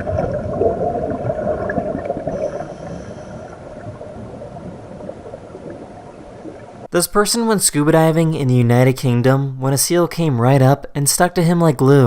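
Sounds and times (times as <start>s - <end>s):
muffled underwater bubbling: 0.0s - 6.9s.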